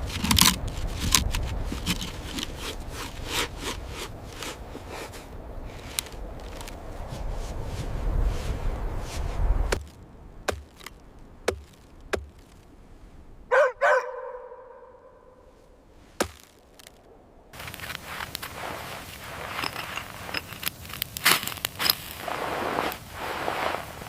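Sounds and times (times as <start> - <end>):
sharp chopping strikes: 9.7 - 12.6, 16.2 - 17.0
short yelping calls: 13.5 - 15.1
fire crackling: 15.9 - 24.0.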